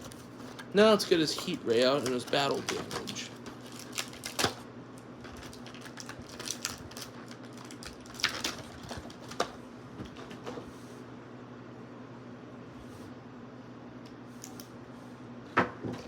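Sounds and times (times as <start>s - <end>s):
plastic packaging clicks and crinkles: 0.0s - 10.4s
steady low hum: 0.0s - 16.0s.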